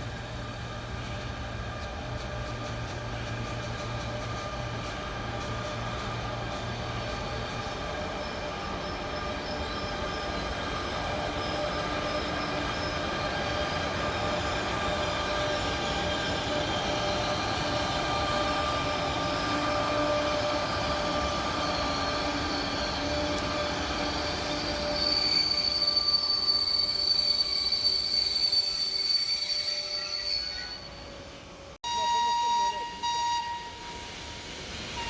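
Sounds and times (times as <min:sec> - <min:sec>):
train whining and squealing: 0:00.0 - 0:35.0
high-pitched wheel squeal: 0:08.2 - 0:31.2.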